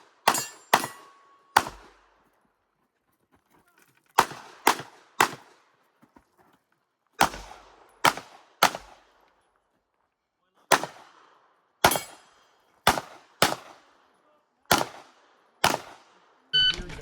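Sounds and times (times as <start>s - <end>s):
pistol shots with echo: 0.0s - 2.1s, 4.2s - 5.6s, 7.2s - 9.2s, 10.7s - 14.0s, 14.7s - 16.4s.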